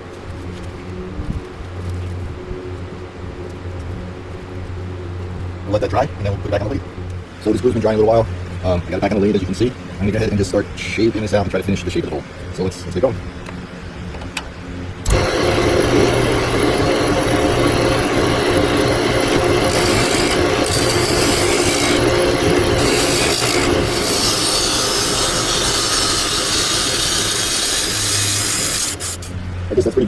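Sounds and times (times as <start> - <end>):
lathe motor hum: 15.0 - 29.4
lathe tool scraping wood: 15.1 - 29.4.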